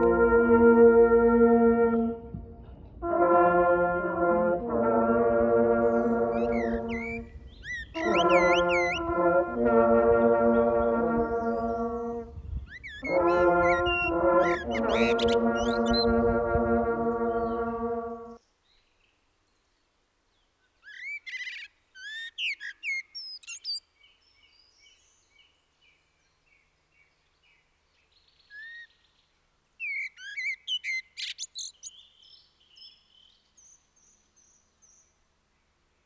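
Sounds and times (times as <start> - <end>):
songbird sweeping song: 5.8 - 36.0
soft repeated bird chirps: 6.0 - 9.1, 10.6 - 16.2, 18.4 - 36.0.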